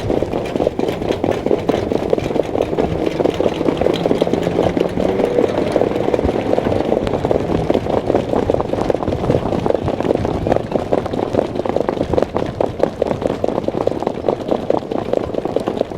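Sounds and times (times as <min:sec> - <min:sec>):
horse hoof thuds: 0:00.0 - 0:15.9
wind and movement noise: 0:00.0 - 0:15.9
faint engine-like hum: 0:00.9 - 0:10.2.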